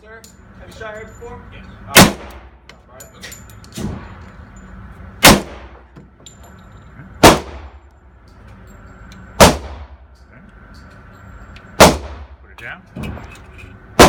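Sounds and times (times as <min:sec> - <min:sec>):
pistol shots echoing: 0:02.0 - 0:02.5, 0:05.2 - 0:05.8, 0:07.2 - 0:07.8, 0:09.4 - 0:10.0, 0:11.8 - 0:12.3.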